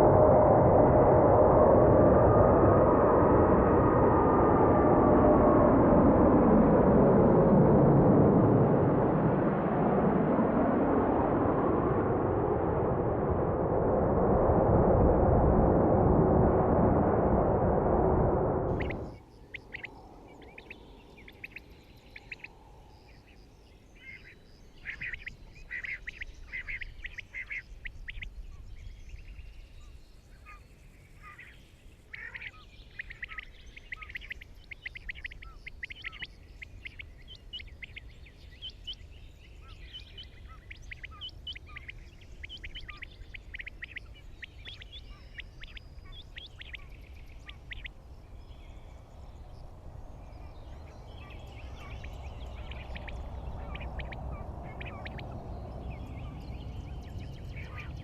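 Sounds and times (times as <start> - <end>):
steady low rumble: 0.0 - 23.6, 32.1 - 58.0
birds chirping: 18.7 - 58.0.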